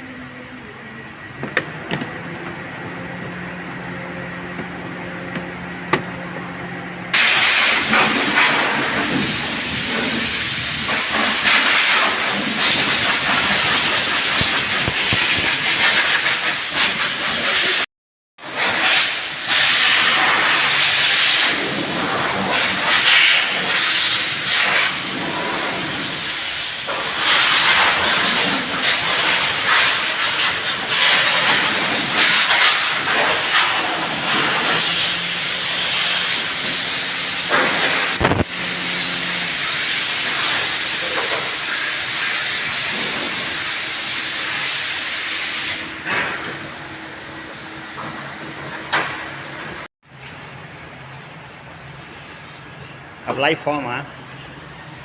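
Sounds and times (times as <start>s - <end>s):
high-pressure jet hissing: 7.1s - 17.9s, 18.5s - 45.9s, 50.1s - 55.0s.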